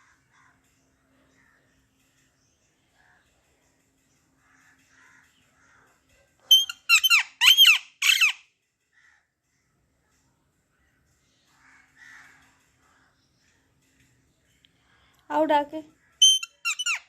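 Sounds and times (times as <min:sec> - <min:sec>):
soft parrot chirps: 0:06.5 - 0:08.4, 0:16.2 - 0:17.0.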